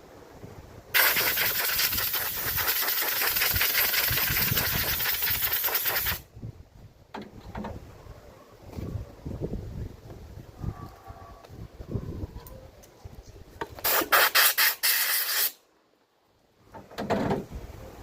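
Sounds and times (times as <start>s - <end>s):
compressed air blow gun hissing: 1.0s - 6.2s, 13.8s - 15.6s.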